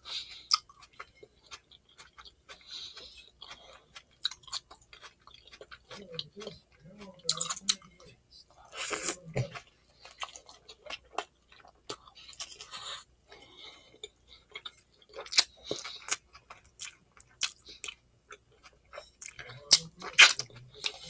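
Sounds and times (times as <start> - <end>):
chewing mouth clicks: 0.2 - 7.9.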